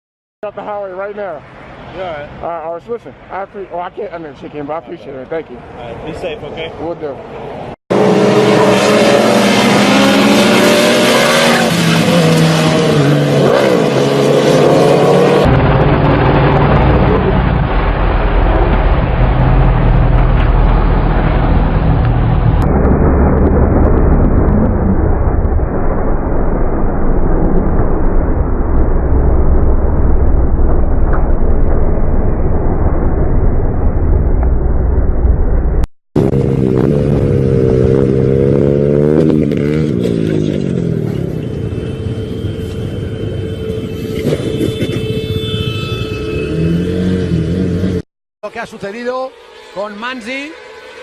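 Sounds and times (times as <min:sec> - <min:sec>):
motorcycle engine revving: 0:07.9 - 0:17.6, 0:36.2 - 0:42.7, 0:46.3 - 0:48.0
wind noise on microphone: 0:15.1 - 0:38.4
motorcycle engine rumble: 0:15.3 - 0:45.5.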